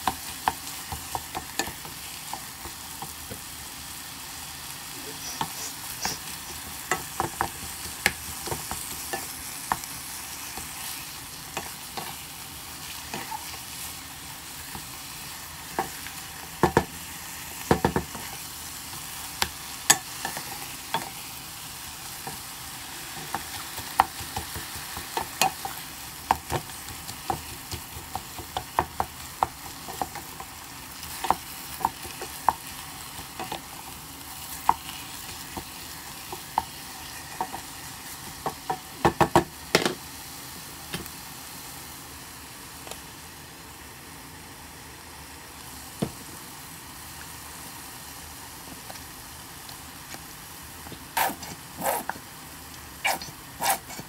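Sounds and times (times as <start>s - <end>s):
meat frying in a pot: 0.0s - 54.0s
wooden spoon scraping a pot: 51.2s - 52.2s, 53.0s - 54.0s.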